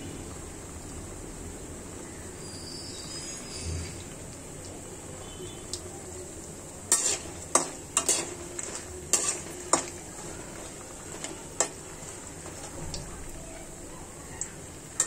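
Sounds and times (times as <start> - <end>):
food sizzling in hot oil: 0.0 - 15.0
metal utensil clinking on pan: 6.9 - 12.7.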